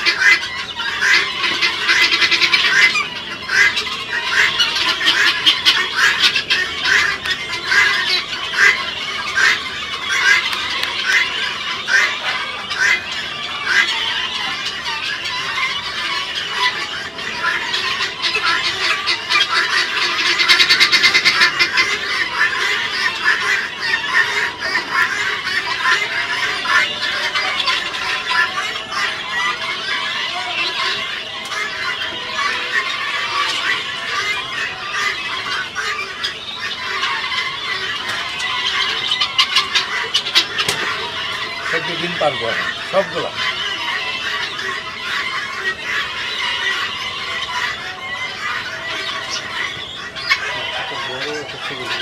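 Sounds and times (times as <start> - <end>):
guineafowl calling: 0.0 - 52.0.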